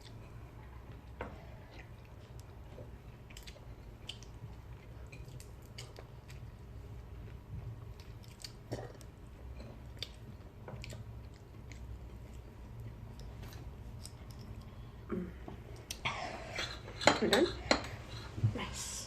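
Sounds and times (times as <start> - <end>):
close chewing and crunching: 0.0 - 14.9
low steady hum: 0.0 - 19.0.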